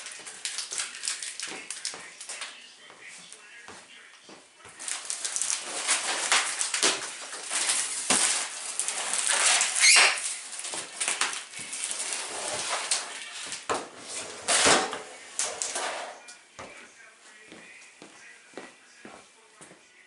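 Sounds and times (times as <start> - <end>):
plastic and cardboard rustling: 0.0 - 3.6, 4.4 - 16.3.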